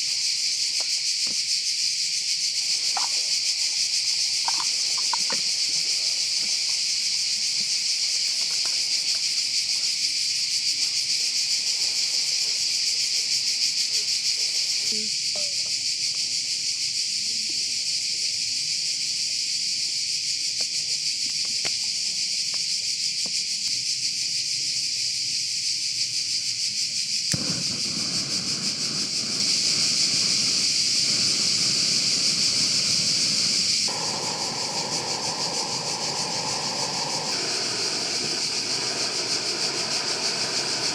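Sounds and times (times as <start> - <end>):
insect chorus buzzing: 0.0 - 40.9
low rushing noise: 27.4 - 40.9.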